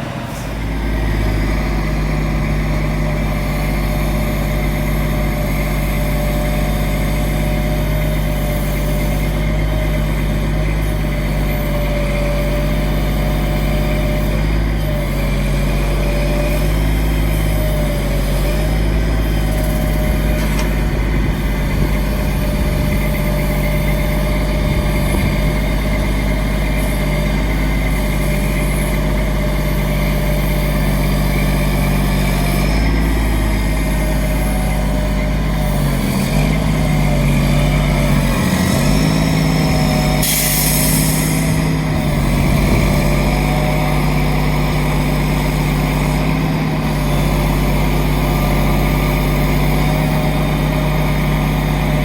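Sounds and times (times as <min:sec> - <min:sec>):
truck engine running: 0:00.0 - 0:52.0
short hiss: 0:40.2 - 0:41.5.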